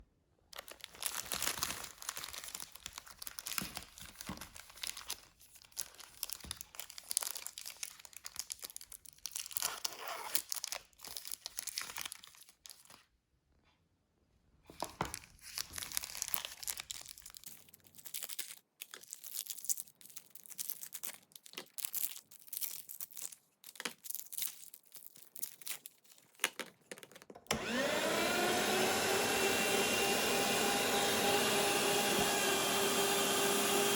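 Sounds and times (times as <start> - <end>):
plastic wrappers crinkling and tearing: 0.5 - 13.1, 14.7 - 27.5
electric meat grinder motor whine: 27.5 - 33.9.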